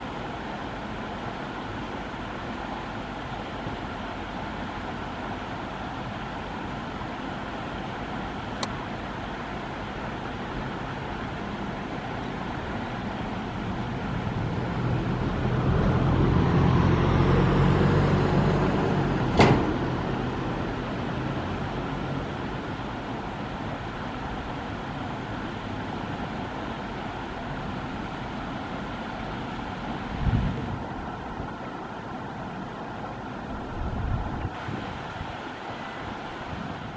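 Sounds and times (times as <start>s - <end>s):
steady road traffic: 0.0s - 36.9s
vehicle passing close by: 13.9s - 22.4s.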